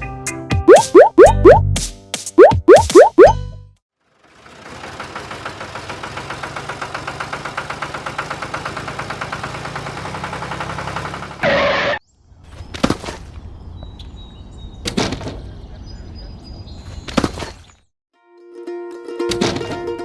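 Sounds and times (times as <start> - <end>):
small engine running: 4.0 - 12.0.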